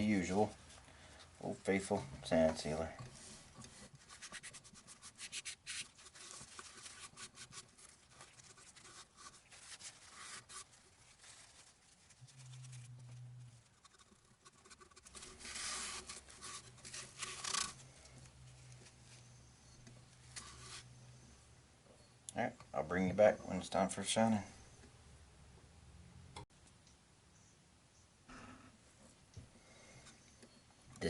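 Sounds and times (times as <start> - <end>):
faint rubbing strokes on wood: 3.1 - 21.3
low steady hum: 6.0 - 31.0.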